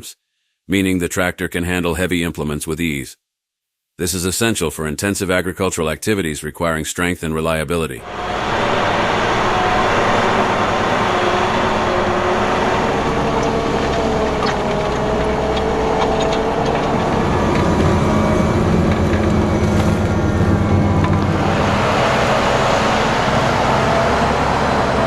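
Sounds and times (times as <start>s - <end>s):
tractor diesel engine running: 8.0s - 25.0s.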